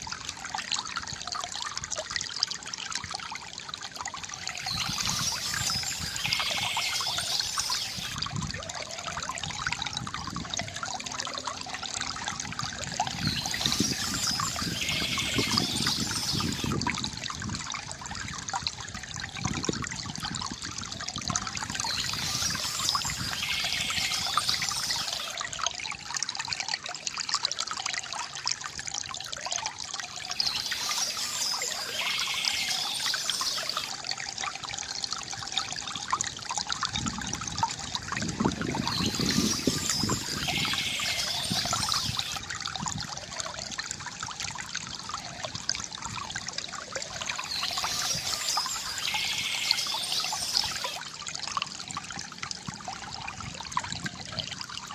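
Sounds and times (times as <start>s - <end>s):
deep water gurgle: 0.0s - 3.2s, 3.8s - 27.2s, 27.9s - 54.9s
water trickling from fountain spout: 0.0s - 54.9s
birds chirping: 4.5s - 8.2s, 13.1s - 16.7s, 21.8s - 25.3s, 30.2s - 33.9s, 38.8s - 42.4s, 47.3s - 51.0s.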